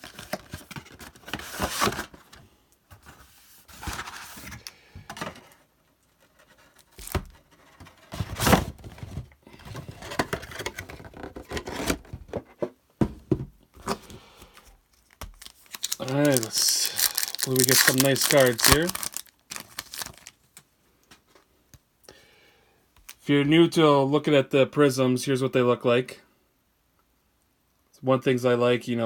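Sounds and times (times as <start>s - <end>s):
plastic wrap crinkling and tearing: 15.0s - 20.6s.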